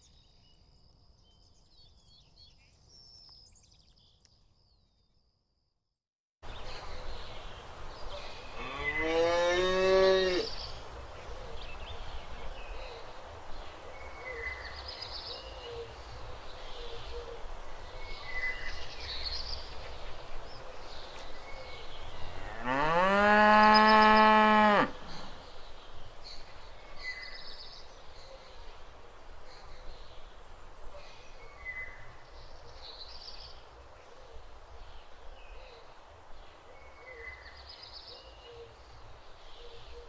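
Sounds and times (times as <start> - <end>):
cow mooing: 22.4 - 25.0.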